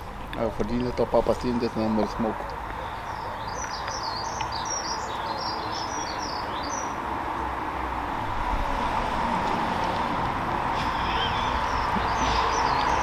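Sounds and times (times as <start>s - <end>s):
songbird chirping: 2.1s - 7.1s, 10.9s - 13.0s.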